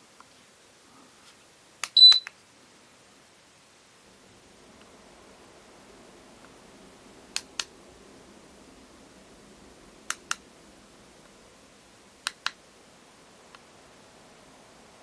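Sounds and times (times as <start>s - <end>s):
faint steady hiss: 0.0s - 15.0s
sharp clicks in pairs: 1.8s - 2.4s, 12.2s - 12.6s.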